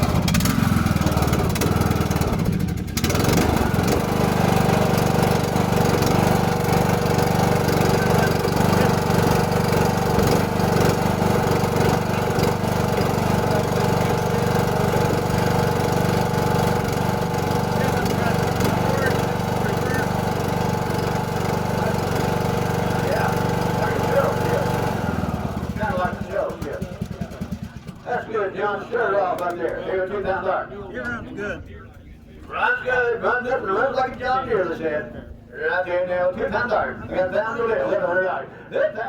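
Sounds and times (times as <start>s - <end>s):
tractor engine running: 0.0s - 30.2s.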